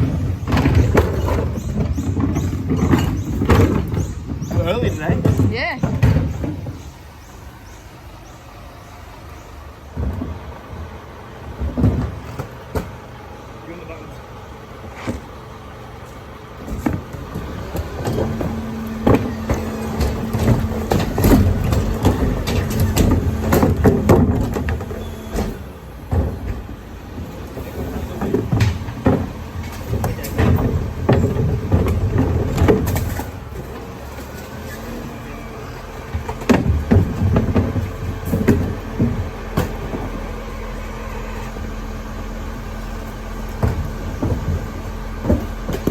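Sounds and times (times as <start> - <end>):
metal clanks and knocks: 0.0 - 6.9, 16.6 - 34.3, 36.1 - 40.2
vehicle engine rumbling: 0.0 - 45.9.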